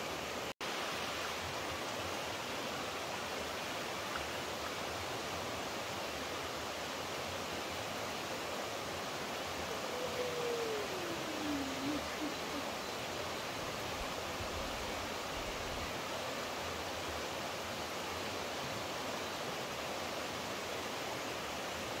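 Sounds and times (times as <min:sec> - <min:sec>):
flowing water rushing: 0:00.0 - 0:22.0
downward gliding tone: 0:09.8 - 0:12.7.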